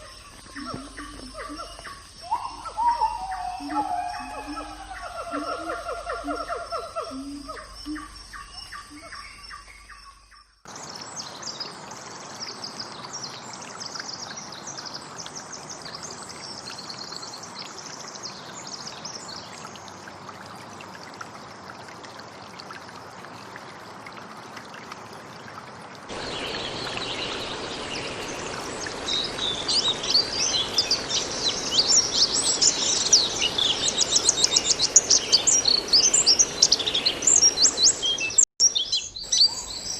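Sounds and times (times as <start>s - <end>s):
birds calling and chirping: 0.0s - 10.3s, 26.1s - 39.9s
outdoor ambience hiss: 0.0s - 39.9s.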